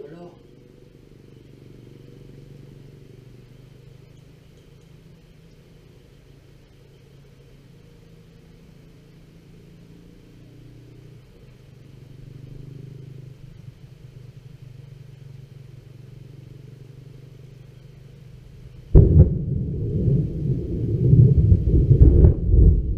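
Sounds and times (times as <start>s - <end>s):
distant thunder rumbling: 18.7s - 22.9s.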